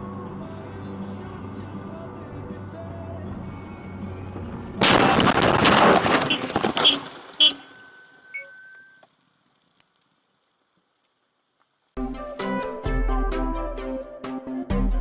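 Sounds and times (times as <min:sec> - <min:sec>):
car engine and road noise: 0:00.0 - 0:12.0
loud car crash: 0:04.8 - 0:07.8.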